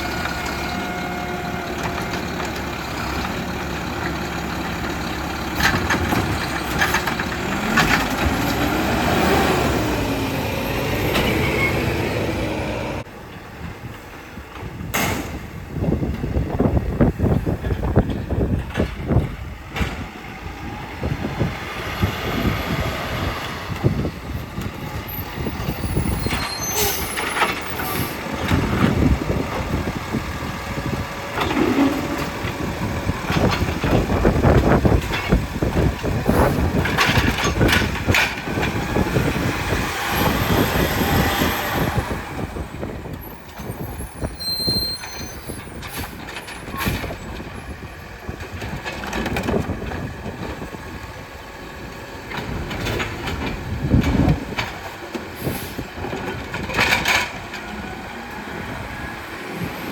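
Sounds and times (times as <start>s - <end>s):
diesel engine running: 0.0s - 14.8s, 15.5s - 44.4s.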